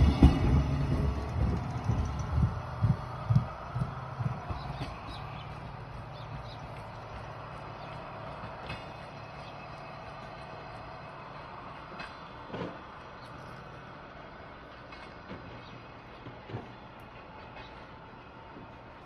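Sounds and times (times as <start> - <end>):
wagons knocking and creaking: 0.0 - 13.9
freight train rumbling: 0.0 - 19.0.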